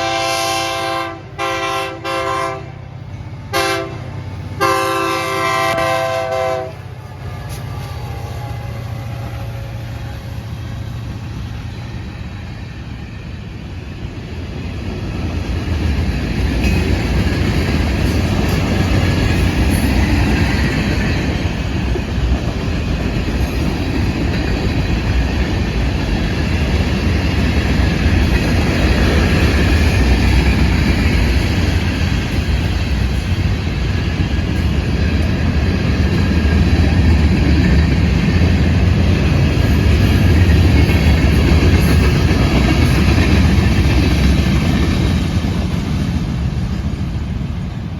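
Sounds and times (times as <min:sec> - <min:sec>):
train rumbling past on rails: 0:00.0 - 0:47.9.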